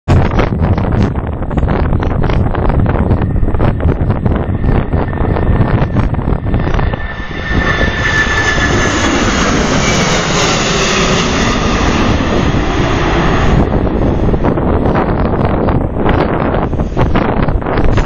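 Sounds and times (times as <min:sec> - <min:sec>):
jet engines rushing and whining: 0:00.1 - 0:18.0
wind buffeting microphone: 0:00.1 - 0:18.0.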